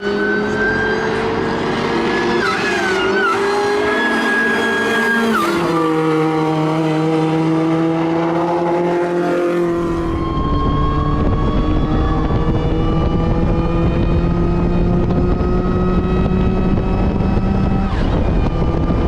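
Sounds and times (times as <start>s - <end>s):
car engine under load: 0.0s - 19.0s.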